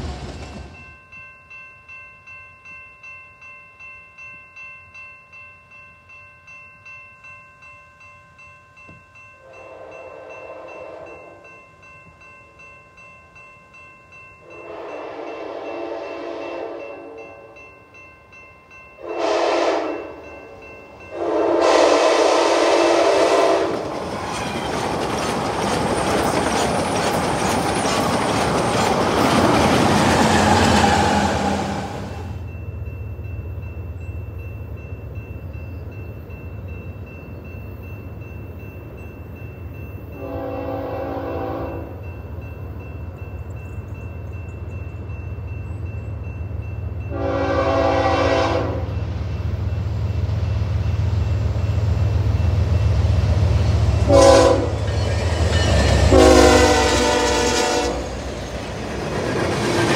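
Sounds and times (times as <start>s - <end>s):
crossing warning bell ringing: 0.0s - 59.9s
train wheel and rail noise: 0.0s - 59.9s
train horn: 9.4s - 11.4s, 14.4s - 17.6s, 19.0s - 20.2s, 21.1s - 23.8s, 40.2s - 42.0s, 47.1s - 49.0s, 54.0s - 55.1s, 55.7s - 58.2s.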